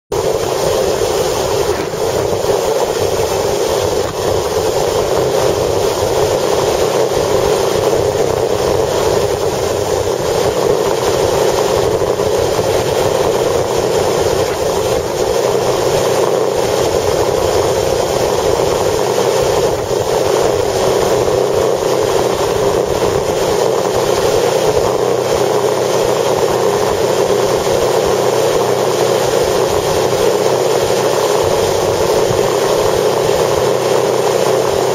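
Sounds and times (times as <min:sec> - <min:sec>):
vehicle running in strong wind: 0:00.1 - 0:34.9.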